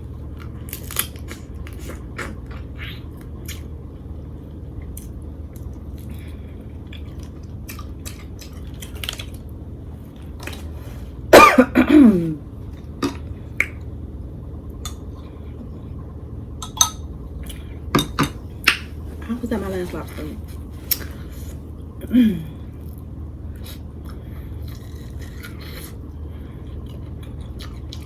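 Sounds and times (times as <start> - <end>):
person's throaty vocal sound: 22.0 - 22.6
chewing mouth noises: 26.7 - 28.0.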